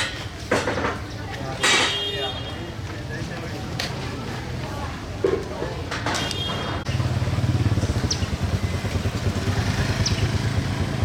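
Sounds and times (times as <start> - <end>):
small engine running: 7.0 - 11.0.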